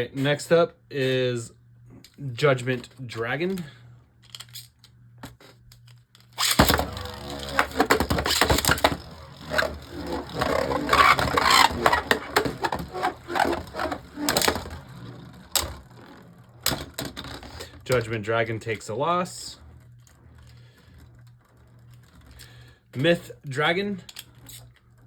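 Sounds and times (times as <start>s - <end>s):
spinning tops clashing and rattling: 6.4s - 15.0s
spinning tops launched: 6.4s - 15.8s.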